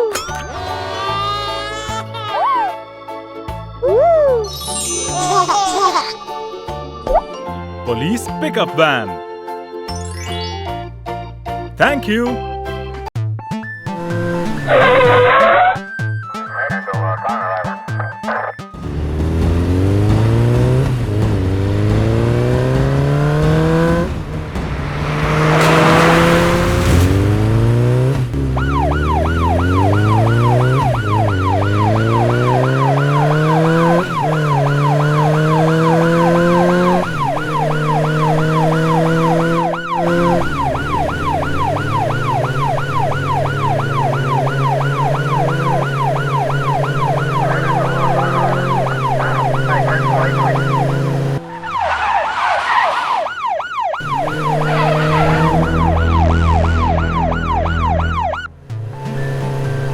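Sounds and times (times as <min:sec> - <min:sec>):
police yelp siren: 0:13.8 - 0:24.2, 0:24.8 - 0:58.5
engine revving in rising steps: 0:13.9 - 0:15.8, 0:18.8 - 0:59.9.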